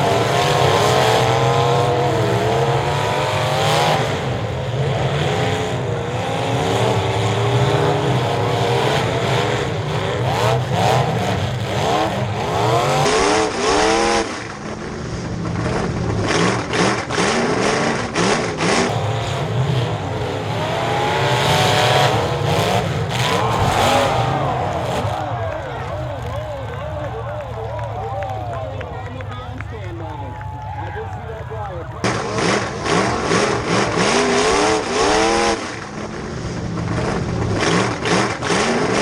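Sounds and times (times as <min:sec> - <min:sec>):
race car engines revving: 0:00.0 - 0:39.0.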